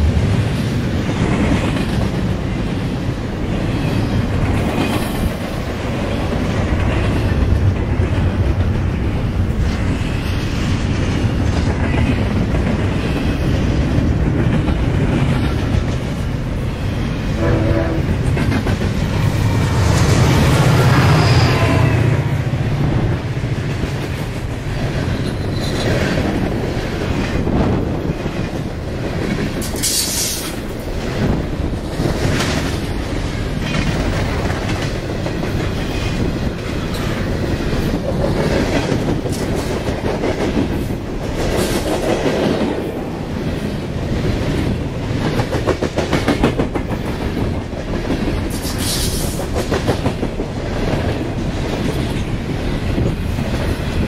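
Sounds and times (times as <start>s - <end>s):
train wheels clicking over rails: 0.0s - 21.2s, 22.4s - 54.0s
high-pitched wheel screeches: 20.9s - 22.0s.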